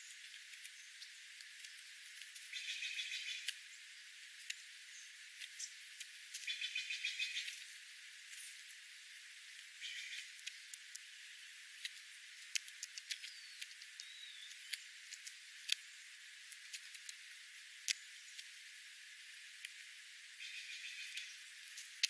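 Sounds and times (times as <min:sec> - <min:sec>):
faint steady hiss: 0:00.0 - 0:22.0
small birds chip notes: 0:00.0 - 0:22.0
bird chattering: 0:02.5 - 0:03.5, 0:06.4 - 0:07.5.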